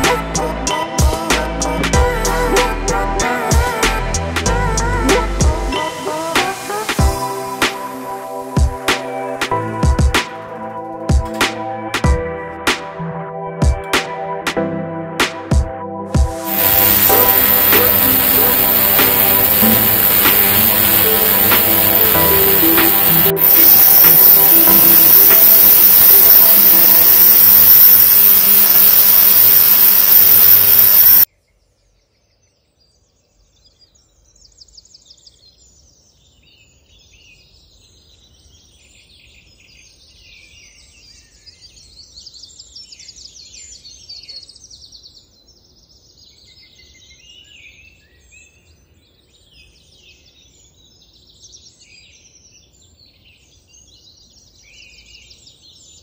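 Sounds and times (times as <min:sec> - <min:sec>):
loud music: 0:16.2 - 0:30.8
birds chirping: 0:16.5 - 0:31.3.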